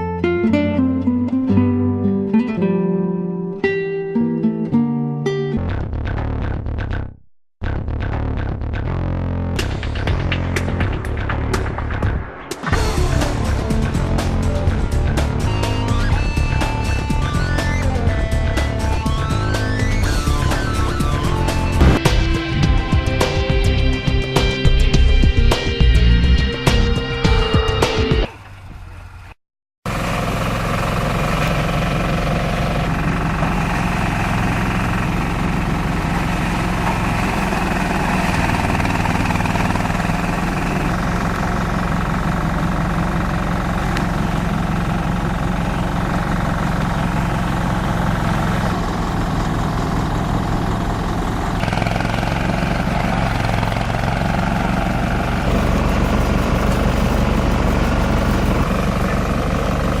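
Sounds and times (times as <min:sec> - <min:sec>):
shredder machine engine drone: 0:12.7 - 0:24.0, 0:29.9 - 1:00.0.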